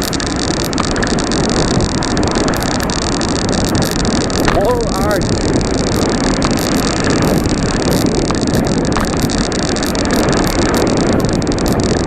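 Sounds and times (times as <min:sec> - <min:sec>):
bicycle road noise: 0:00.0 - 0:12.0
wind on microphone: 0:00.0 - 0:12.0.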